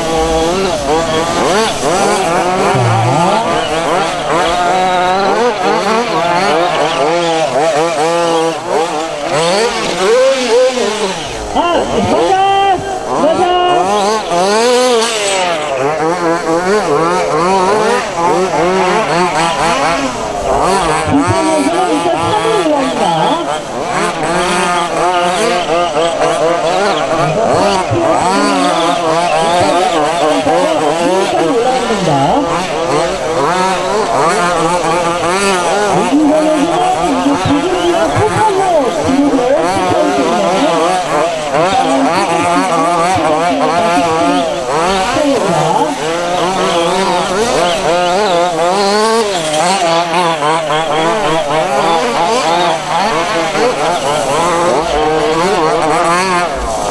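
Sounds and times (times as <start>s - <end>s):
model car engines revving: 0.0s - 56.9s.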